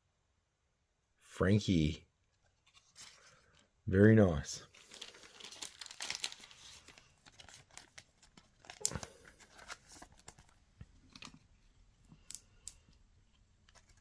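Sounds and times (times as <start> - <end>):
cards rustling and clicking: 2.2 - 3.7, 4.7 - 14.0
foil pack crinkling and tearing: 4.7 - 10.5.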